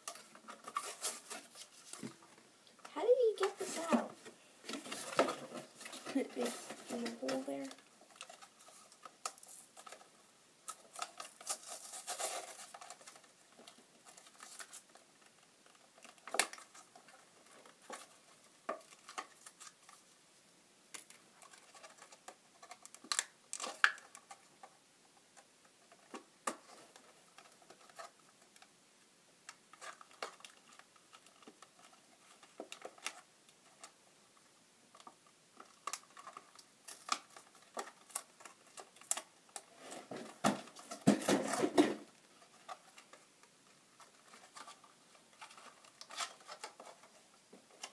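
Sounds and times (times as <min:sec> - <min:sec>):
plastic packaging rustling: 0:00.0 - 0:02.3, 0:03.1 - 0:20.1, 0:34.9 - 0:47.9.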